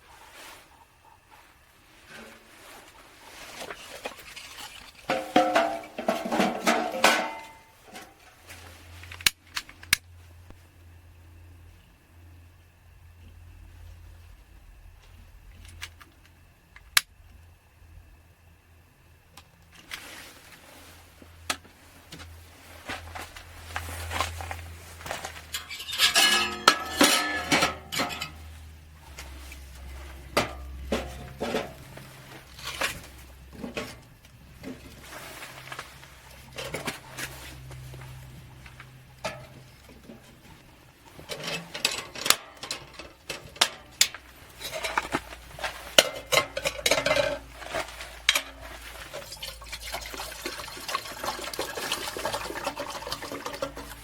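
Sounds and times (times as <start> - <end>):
metal utensils clinking on dishes: 4.2 - 8.2, 25.4 - 28.5, 30.4 - 31.9, 41.3 - 50.0.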